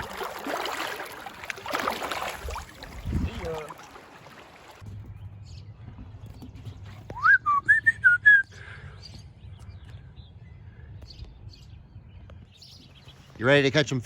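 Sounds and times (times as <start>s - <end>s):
outboard motor humming: 0.0s - 4.8s
person whistling: 7.1s - 8.6s.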